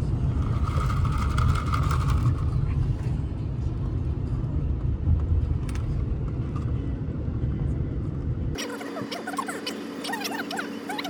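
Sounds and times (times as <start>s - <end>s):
steady low rumble: 0.0s - 8.6s
music: 1.9s - 7.8s.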